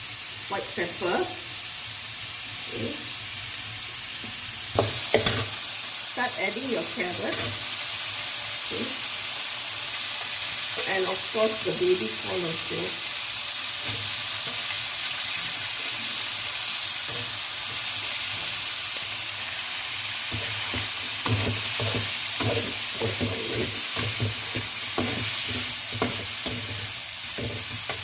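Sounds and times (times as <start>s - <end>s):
food sizzling in a pan: 0.0s - 28.0s
spatula scraping a pan: 20.2s - 28.0s.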